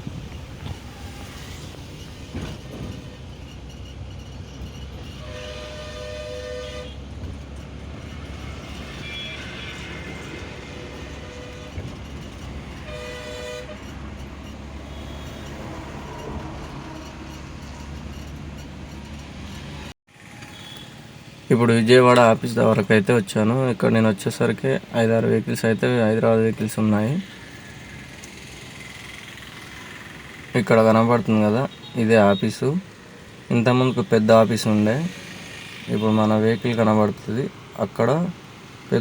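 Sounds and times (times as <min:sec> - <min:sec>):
truck engine and road rumble: 0:00.0 - 0:39.0
two-tone vehicle horn: 0:05.1 - 0:07.3, 0:08.6 - 0:17.8, 0:20.4 - 0:21.1, 0:31.5 - 0:32.6.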